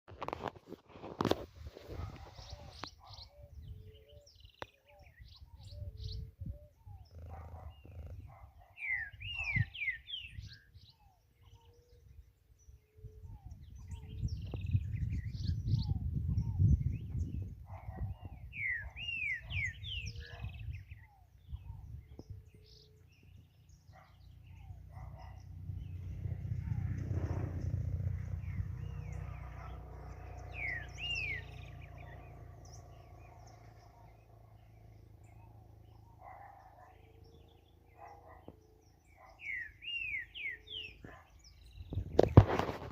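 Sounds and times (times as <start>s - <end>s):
bird singing clear whistles: 8.8s - 11.7s, 18.1s - 22.9s, 30.4s - 32.1s, 39.2s - 42.0s
low rumble: 25.4s - 30.4s.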